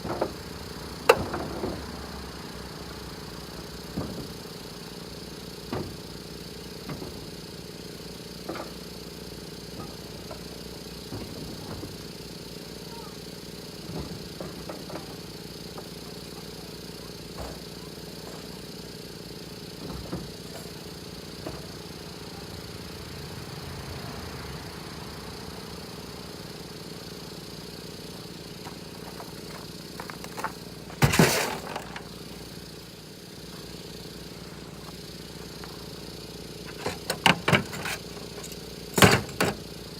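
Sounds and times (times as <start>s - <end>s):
engine-like hum: 0.0s - 39.9s
tools and metal parts clicking: 36.7s - 39.6s.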